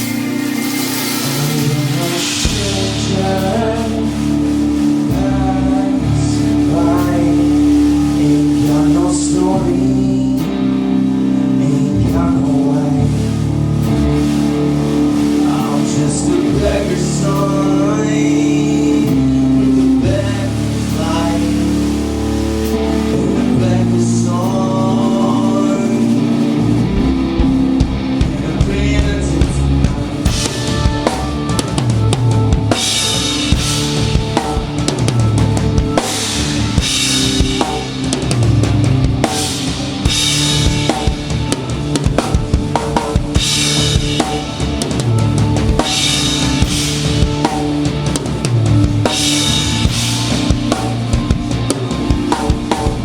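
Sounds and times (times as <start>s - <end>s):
cymbal crashes: 0.0s - 3.0s
drum kit beat: 0.0s - 53.0s
live band playing: 0.0s - 53.0s.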